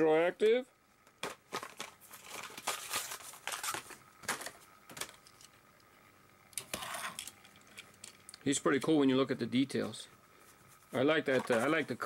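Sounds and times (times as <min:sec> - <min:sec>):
plastic blister pack crinkling: 0:01.2 - 0:05.4.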